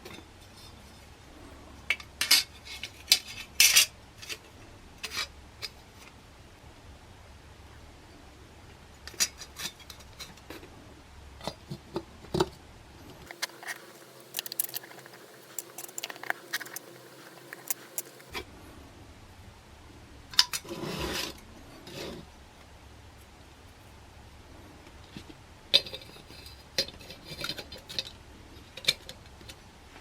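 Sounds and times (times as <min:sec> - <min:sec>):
small metal parts clicking: 0:13.2 - 0:18.3.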